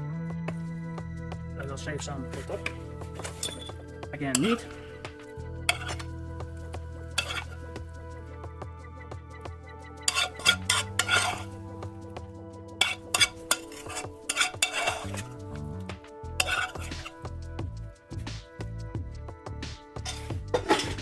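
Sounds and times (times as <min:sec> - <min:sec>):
background music: 0:00.0 - 0:21.0
spoon scraping and clinking dishes: 0:02.4 - 0:06.2, 0:07.1 - 0:07.8, 0:10.1 - 0:11.7, 0:12.8 - 0:15.4, 0:16.4 - 0:17.3, 0:20.0 - 0:21.0.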